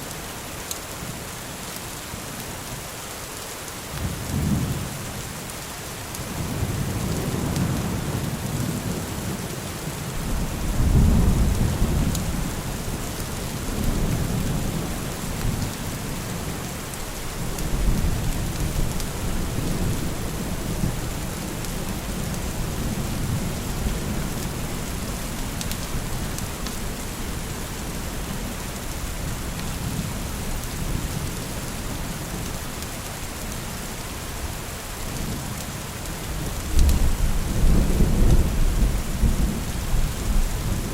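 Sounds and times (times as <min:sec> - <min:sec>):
rain falling: 0:00.0 - 0:40.9
thunder rumbling: 0:10.2 - 0:15.7.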